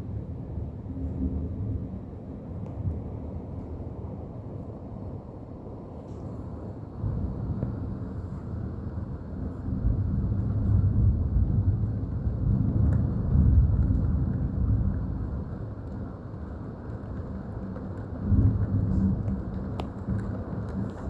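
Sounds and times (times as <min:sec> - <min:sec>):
thunder rumbling: 0:07.0 - 0:21.0.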